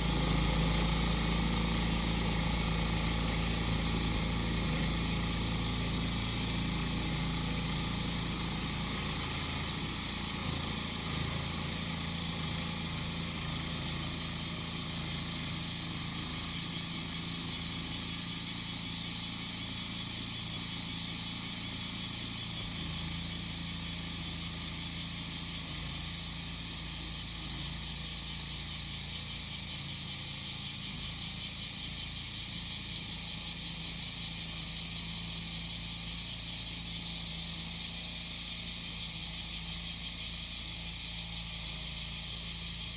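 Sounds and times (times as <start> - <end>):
cicadas pulsing: 0.0 - 42.9
grass cutter engine running: 0.0 - 42.9.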